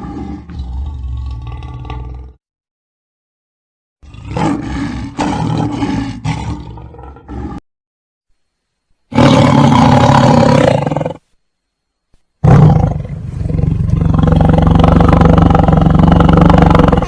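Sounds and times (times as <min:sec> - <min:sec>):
big cat roaring: 0:00.0 - 0:02.4, 0:04.0 - 0:07.6, 0:09.1 - 0:11.2, 0:12.4 - 0:17.0.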